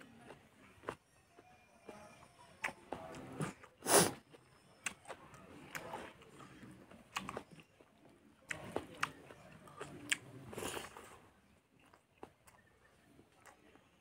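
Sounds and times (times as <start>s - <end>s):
close chewing with wet mouth clicks: 2.6s - 11.2s, 11.8s - 13.9s.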